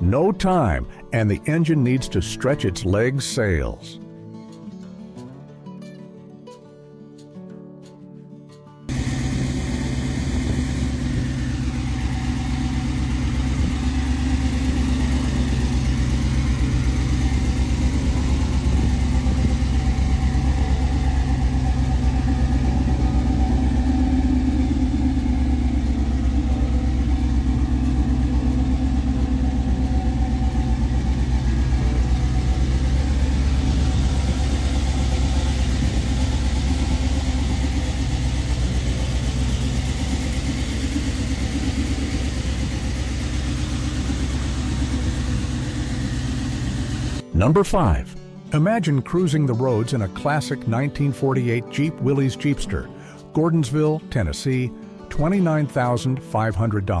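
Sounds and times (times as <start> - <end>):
car engine idling: 8.9 - 47.2.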